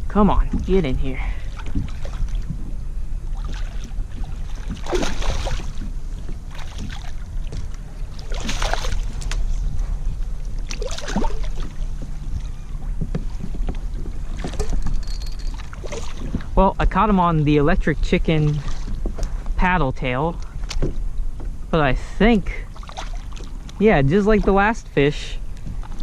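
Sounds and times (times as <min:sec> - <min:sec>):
wind rumbling on microphone: 0:00.0 - 0:26.0
splashing and rustling: 0:00.4 - 0:02.7, 0:03.3 - 0:16.6, 0:18.4 - 0:19.3, 0:22.7 - 0:24.8.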